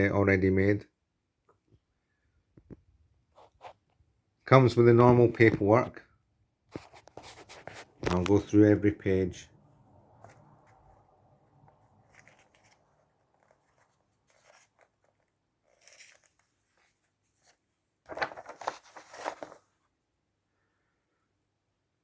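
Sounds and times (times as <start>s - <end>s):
paper rustling and crinkling: 6.7s - 8.5s, 11.8s - 19.8s.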